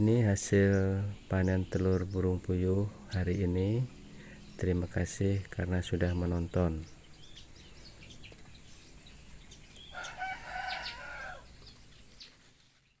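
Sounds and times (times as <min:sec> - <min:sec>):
small birds chirping: 0:00.0 - 0:13.0
rooster crowing: 0:09.9 - 0:11.5.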